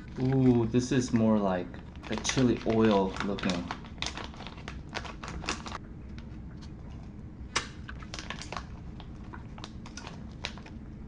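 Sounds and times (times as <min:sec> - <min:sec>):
plastic food packets crinkling: 0:00.0 - 0:05.8, 0:07.8 - 0:10.8.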